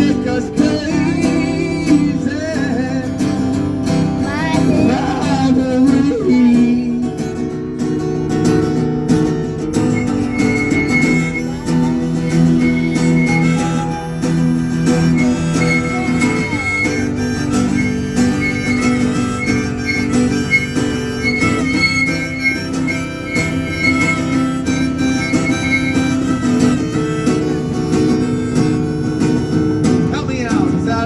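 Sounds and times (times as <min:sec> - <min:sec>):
person singing: 0:00.0 - 0:03.3, 0:04.2 - 0:07.4, 0:11.4 - 0:14.4
harmonica playing: 0:00.0 - 0:30.4
acoustic guitar strumming: 0:00.0 - 0:31.0.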